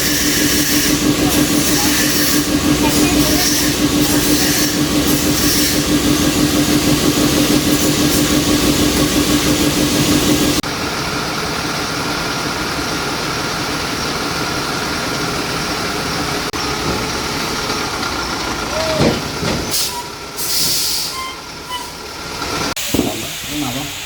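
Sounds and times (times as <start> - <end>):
motor humming: 0.0 - 10.6.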